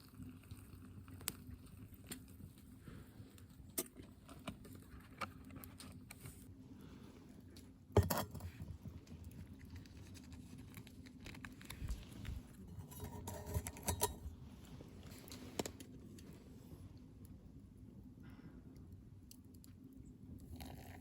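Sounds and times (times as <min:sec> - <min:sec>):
small objects clicking and scraping: 0:09.6 - 0:14.3.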